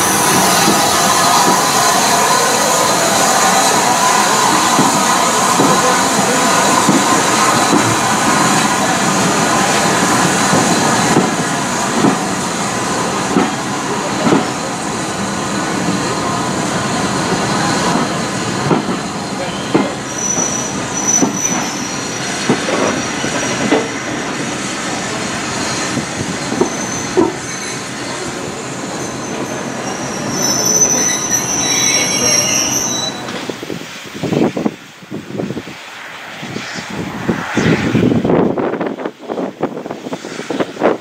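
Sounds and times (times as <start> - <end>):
high wheel squeal: 0.0 - 11.2, 19.2 - 24.3, 25.0 - 33.4
train rolling rumble with knocks: 0.0 - 41.0.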